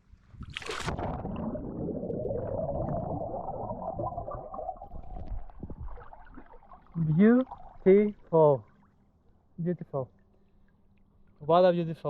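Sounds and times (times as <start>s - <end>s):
underwater rumbling and gurgling: 0.0s - 8.3s.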